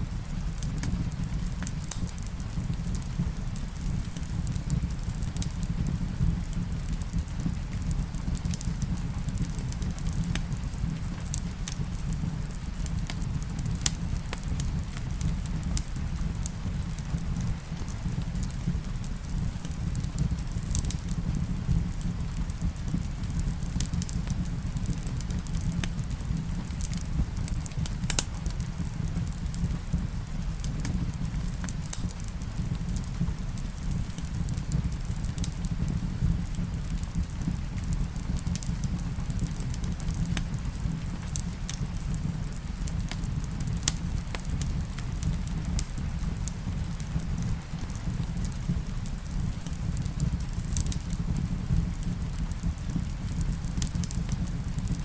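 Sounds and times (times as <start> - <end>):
wood fire crackling and popping: 0.0 - 55.0
rain hissing: 41.0 - 44.9.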